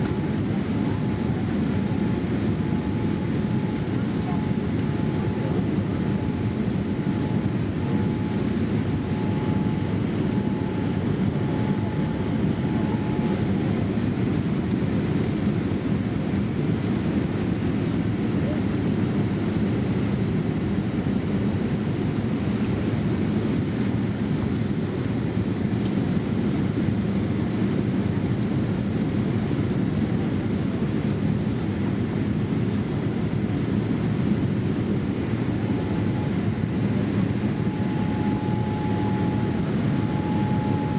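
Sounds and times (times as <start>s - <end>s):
faint broken whine: 0.0s - 15.6s, 33.7s - 40.9s
aircraft cabin engine and airflow rush: 0.0s - 40.9s.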